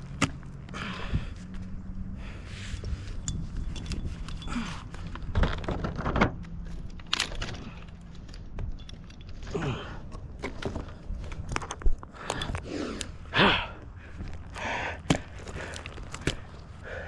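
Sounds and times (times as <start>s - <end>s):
heavy breathing: 0.7s - 3.2s, 12.0s - 17.0s
handling clicks and rustles: 2.8s - 13.2s, 14.1s - 16.8s.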